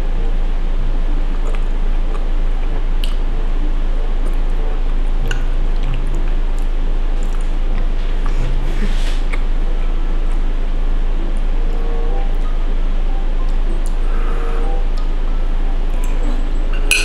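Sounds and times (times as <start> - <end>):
low electrical hum and hiss: 0.0 - 17.0
wet squishy chewing: 1.3 - 3.2, 5.2 - 9.5.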